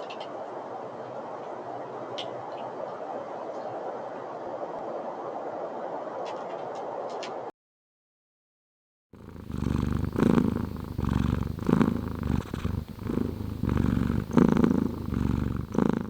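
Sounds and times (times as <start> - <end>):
cat purring: 9.2 - 16.0.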